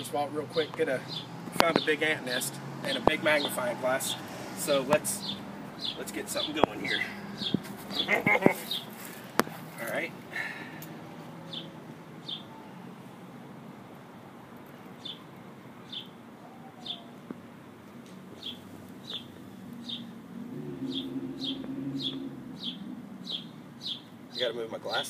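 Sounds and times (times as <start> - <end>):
small bird chirping: 5.2 - 8.9, 18.4 - 20.1, 20.9 - 24.5.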